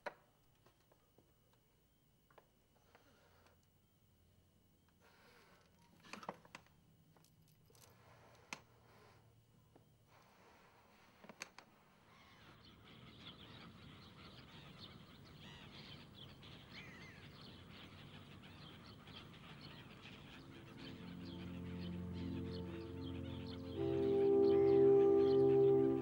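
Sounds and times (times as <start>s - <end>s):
faint birdsong: 0.0s - 26.0s
held music notes: 19.3s - 26.0s.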